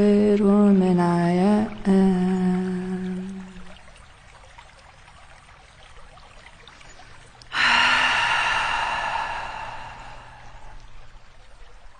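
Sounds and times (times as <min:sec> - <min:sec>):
person breathy exhale: 0:07.5 - 0:10.8.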